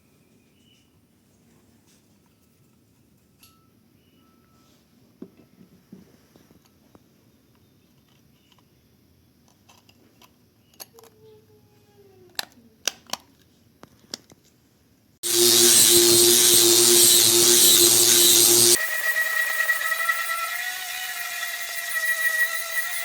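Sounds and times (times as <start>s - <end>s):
loud steady hiss with hum: 15.2s - 18.8s.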